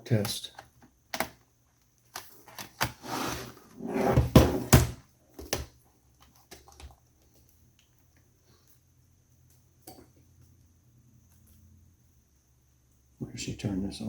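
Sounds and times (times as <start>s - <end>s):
laptop sliding scrape: 2.9s - 4.7s.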